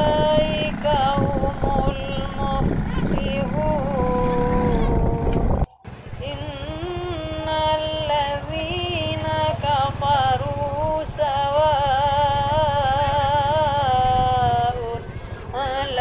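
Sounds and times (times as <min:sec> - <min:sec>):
low steady rumble: 0:00.0 - 0:16.0
person reciting melodically: 0:00.0 - 0:16.0.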